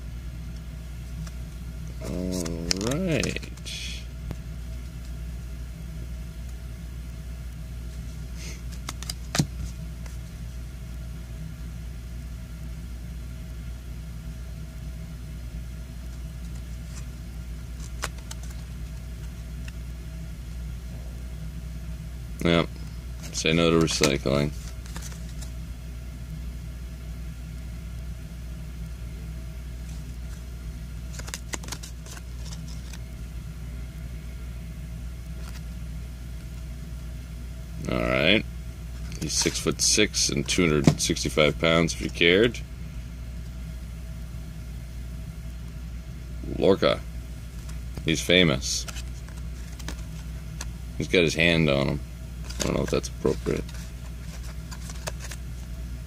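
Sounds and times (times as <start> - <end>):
low background hum: 0.0 - 56.0
card snapping: 2.0 - 3.6, 8.7 - 9.6, 17.8 - 18.7, 23.8 - 25.5, 31.1 - 33.0, 48.8 - 50.8, 52.4 - 55.4
cards clicking: 2.0 - 3.8, 8.6 - 10.2, 17.7 - 19.8, 23.2 - 25.5, 31.0 - 33.0, 39.0 - 42.2, 47.6 - 50.8, 52.4 - 55.7.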